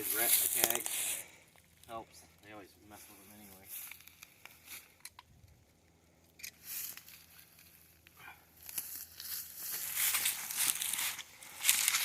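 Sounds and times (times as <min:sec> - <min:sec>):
crinkling and rustling handling: 0:00.0 - 0:05.3, 0:06.4 - 0:12.0.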